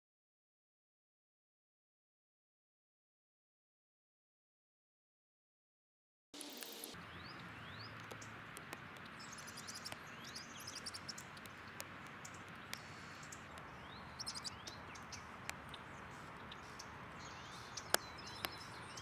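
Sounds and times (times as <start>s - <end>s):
steady outdoor hiss: 6.4s - 19.0s
small birds chirping: 6.5s - 19.0s.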